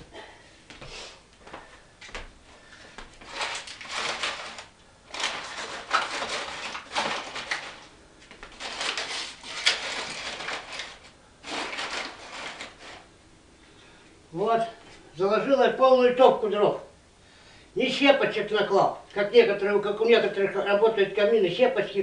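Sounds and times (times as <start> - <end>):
logs scraping and knocking: 3.2 - 13.1.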